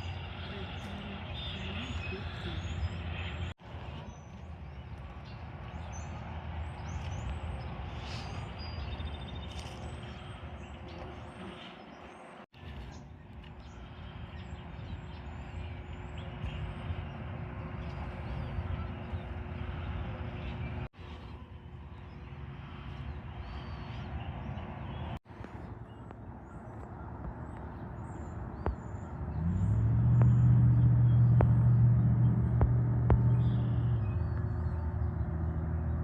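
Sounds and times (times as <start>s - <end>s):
truck diesel engine drone: 0.0s - 8.6s, 28.4s - 36.0s
traffic passing: 0.0s - 36.0s.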